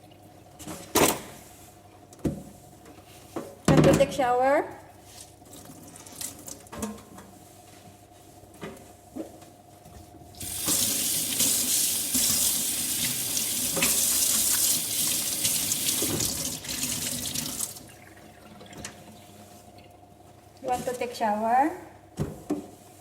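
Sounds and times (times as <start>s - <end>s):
tap running into sink: 10.4s - 17.7s.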